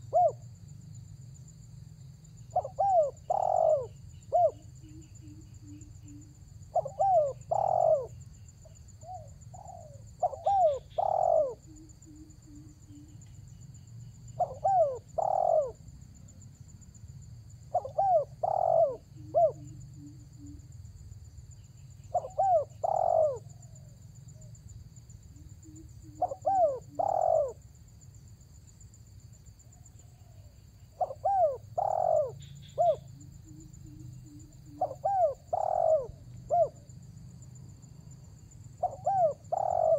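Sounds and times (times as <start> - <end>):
dove cooing: 0.0 - 0.4, 2.5 - 8.2, 9.0 - 13.3, 14.4 - 15.8, 17.7 - 20.6, 22.1 - 23.9, 25.4 - 27.6, 30.1 - 36.9, 38.8 - 39.9.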